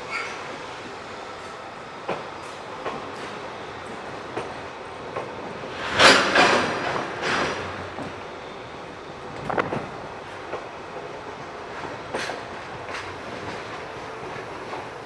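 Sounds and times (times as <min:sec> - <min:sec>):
train rumbling past: 0:00.0 - 0:15.0
wheels clacking over rail joints: 0:02.1 - 0:08.3, 0:09.4 - 0:15.0.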